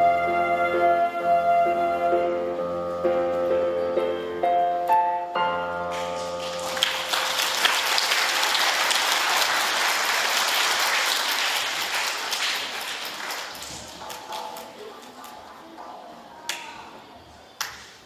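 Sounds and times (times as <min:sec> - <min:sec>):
audience applause: 0:06.2 - 0:15.2.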